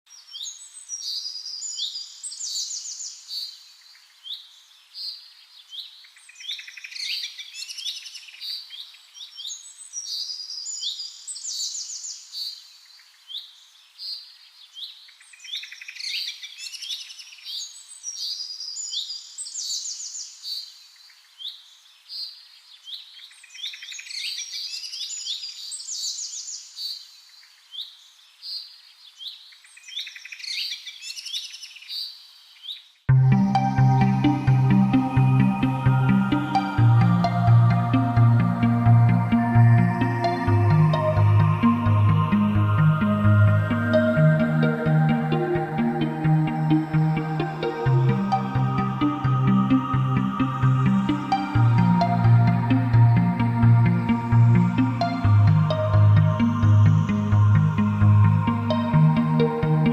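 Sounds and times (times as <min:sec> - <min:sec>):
small birds chirping and trilling: 0:00.1 - 0:38.3.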